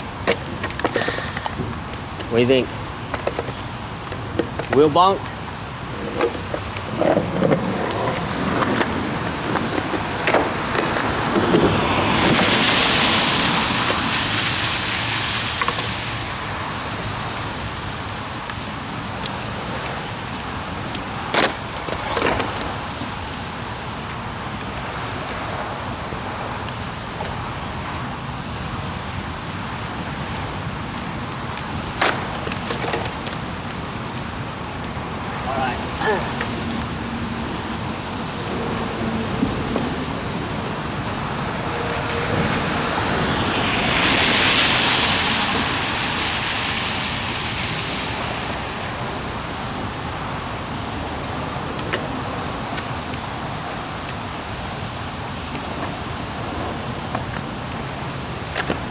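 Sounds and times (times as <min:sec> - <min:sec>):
rain on wet pavement: 0:00.0 - 0:58.9
skateboard clacks: 0:00.0 - 0:58.9
rushing hiss: 0:00.1 - 0:06.9, 0:09.3 - 0:20.8, 0:31.4 - 0:51.1.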